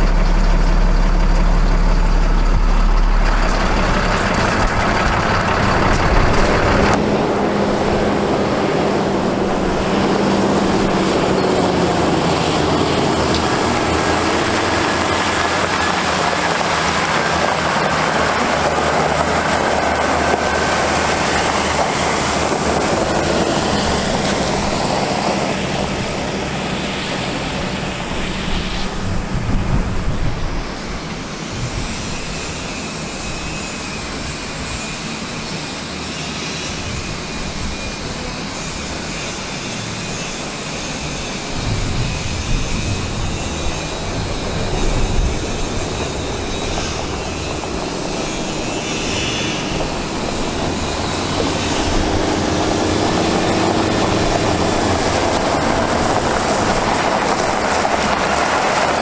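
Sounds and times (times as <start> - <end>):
diesel truck engine running: 0.0 - 59.0
steady rushing noise: 0.0 - 59.0.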